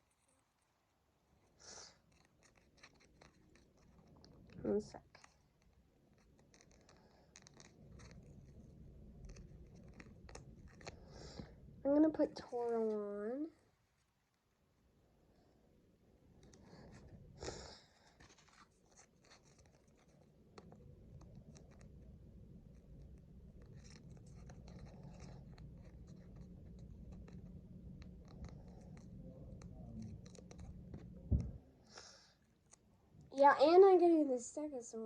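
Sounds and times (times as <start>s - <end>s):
sticker scratching and rubbing: 2.0s - 11.1s, 18.1s - 22.1s, 22.7s - 31.4s
thump: 31.3s - 31.6s.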